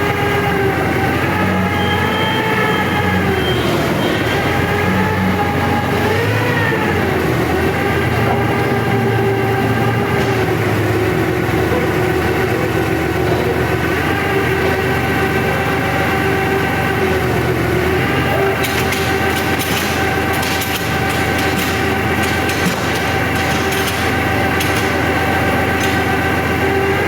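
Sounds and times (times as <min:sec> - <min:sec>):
high machine whine: 0:00.0 - 0:27.0
sawmill machinery drone: 0:00.0 - 0:27.0.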